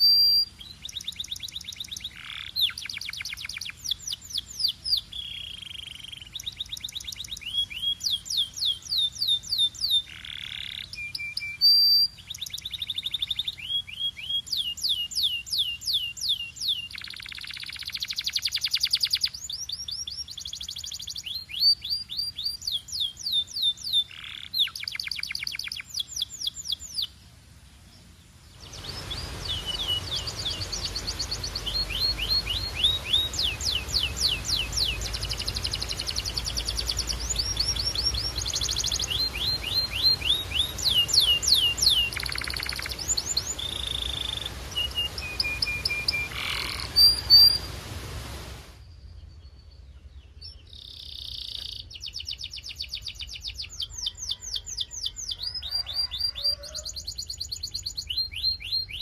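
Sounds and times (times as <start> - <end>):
canary singing trills: 0.0 - 27.2, 28.6 - 47.8, 49.4 - 59.0
steady hiss: 24.1 - 49.1.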